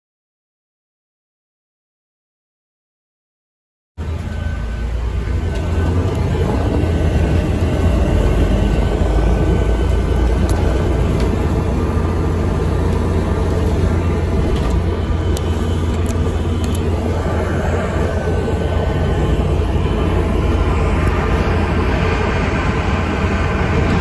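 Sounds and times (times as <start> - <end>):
bus engine and road rumble: 4.0 - 24.0.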